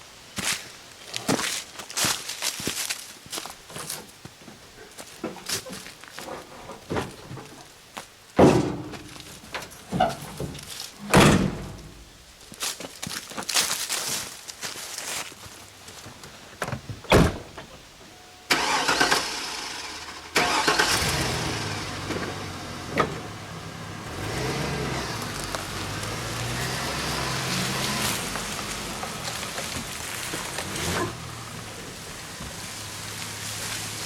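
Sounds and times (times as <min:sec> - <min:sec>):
vehicle engine starting and running: 0:18.5 - 0:34.0.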